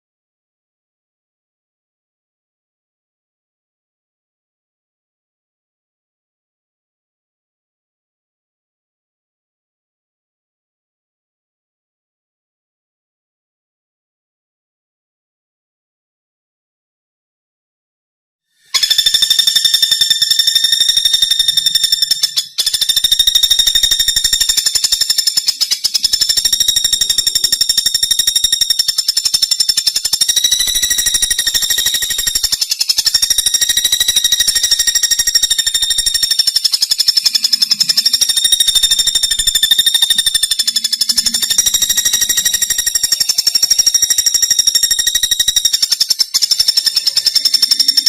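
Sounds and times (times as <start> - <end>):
woodpecker rattling trill: 18.6 - 48.0.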